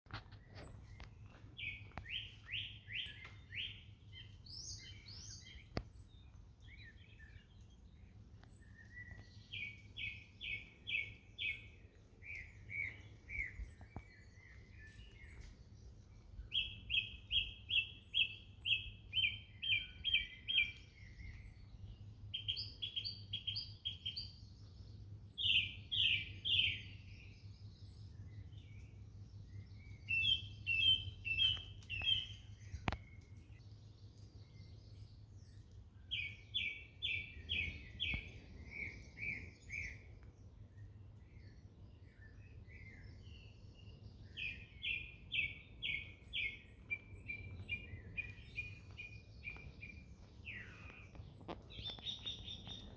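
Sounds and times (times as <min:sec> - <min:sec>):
songbirds chirping: 0:00.1 - 0:52.9.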